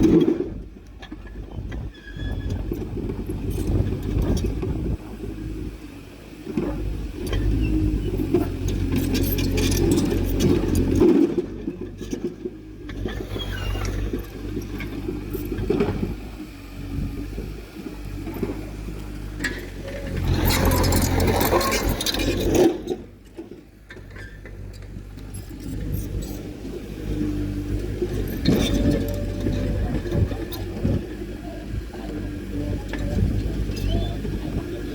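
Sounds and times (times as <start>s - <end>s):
heavy machinery diesel engine: 0.0s - 34.9s
metallic clanking and scraping: 6.6s - 16.2s, 19.3s - 31.0s.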